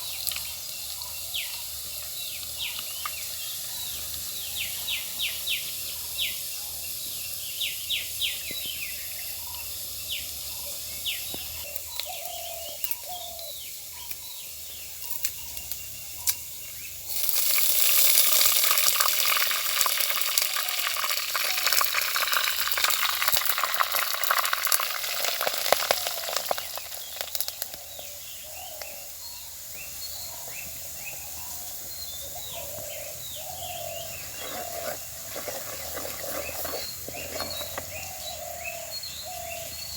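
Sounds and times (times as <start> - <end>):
small birds chirping: 0.0 - 39.9
food sizzling in hot oil: 16.9 - 32.0.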